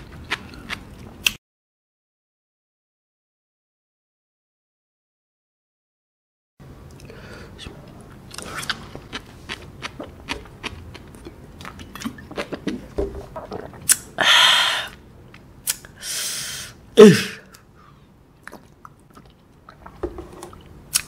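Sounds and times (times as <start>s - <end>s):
falling vocal grunt: 17.0s - 17.5s.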